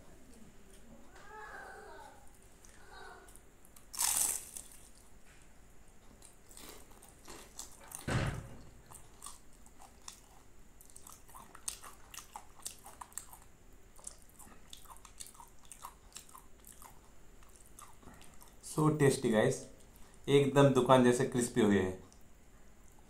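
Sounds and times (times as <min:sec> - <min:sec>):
chewing flaky pastry: 0:02.6 - 0:08.1, 0:08.7 - 0:18.8
crunchy bite into pastry: 0:03.8 - 0:05.1
dull thump: 0:08.0 - 0:08.6.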